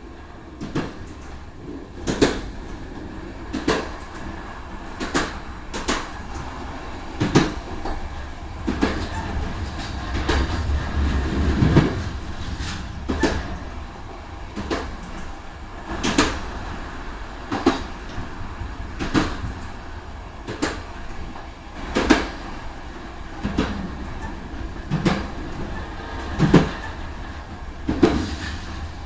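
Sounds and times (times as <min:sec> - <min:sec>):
train rumble: 0:00.0 - 0:29.0
wheel clack over rail joint: 0:07.2 - 0:13.7, 0:23.4 - 0:27.1, 0:27.8 - 0:28.8.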